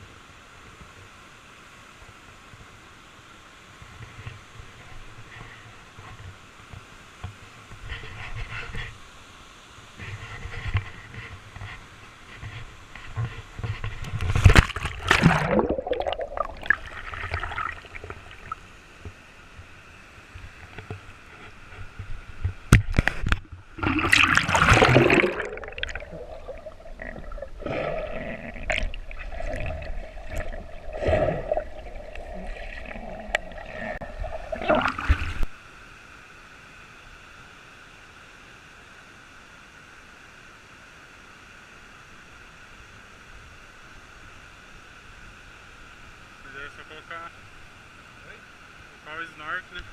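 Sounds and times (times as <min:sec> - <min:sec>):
faint steady hiss: 0:00.0 - 0:49.9
water splashing and gurgling: 0:14.2 - 0:18.8, 0:22.9 - 0:35.6.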